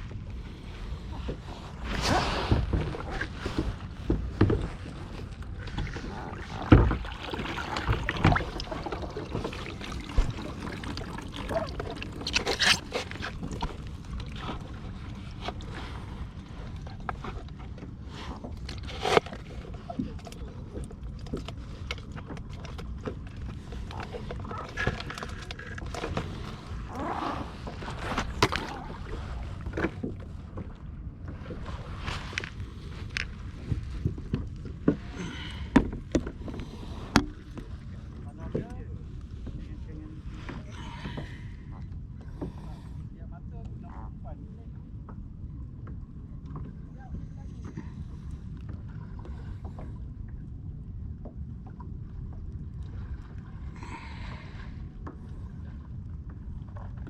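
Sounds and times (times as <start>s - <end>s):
knocks and scrapes on boat: 0.0s - 43.1s
low wind rumble: 0.0s - 57.0s
water sloshing against hull: 0.0s - 57.0s.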